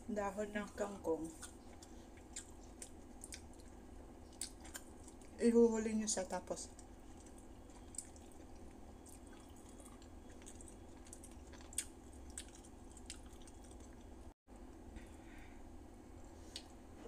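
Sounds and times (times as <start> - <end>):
low steady hum: 0.0 - 17.0
wet chewing clicks and smacks: 1.4 - 5.4, 6.7 - 14.3.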